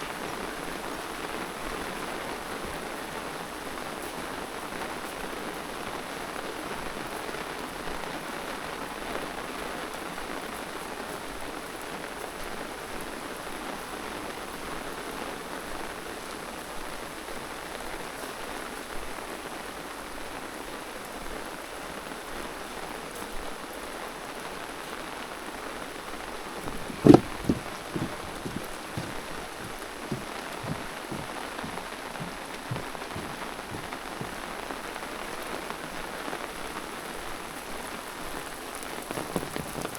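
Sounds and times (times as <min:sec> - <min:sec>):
steady rain falling: 0:00.0 - 0:39.9
sharp loud knock: 0:26.7 - 0:29.1
light taps: 0:26.7 - 0:34.4.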